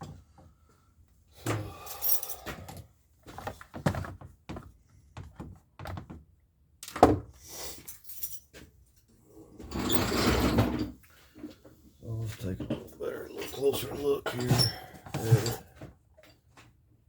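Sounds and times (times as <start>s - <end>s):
parts knocking and clattering: 12.4s - 16.8s.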